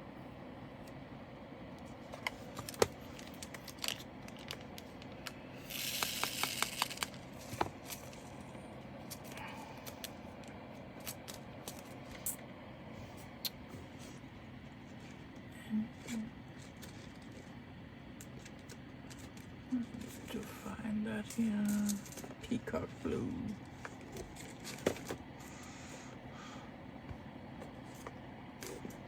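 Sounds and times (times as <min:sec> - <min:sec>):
small plastic pieces clicking: 0:03.2 - 0:07.2
rustling rattle: 0:21.6 - 0:22.4.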